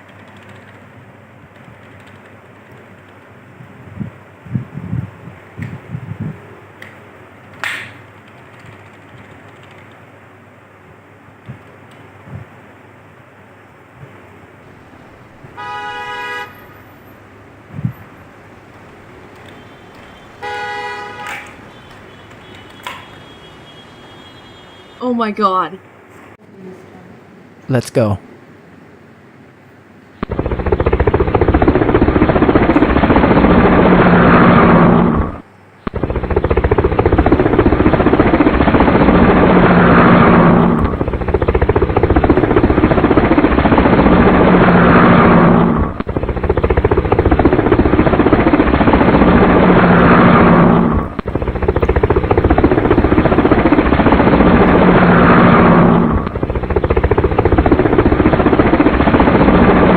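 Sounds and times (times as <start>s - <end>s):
helicopter rotor chopping: 0.0s - 10.1s, 14.0s - 24.7s, 30.2s - 59.9s.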